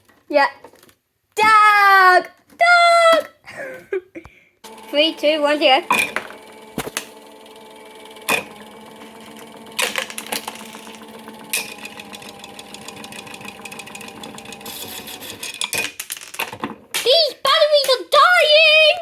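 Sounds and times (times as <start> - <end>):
small electric motor whirring: 4.6 - 15.6.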